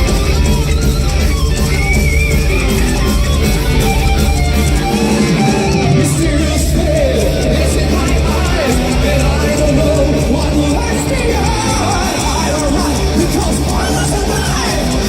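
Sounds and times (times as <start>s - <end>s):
heavy metal band playing live: 0.0s - 15.0s
person singing: 5.0s - 15.0s.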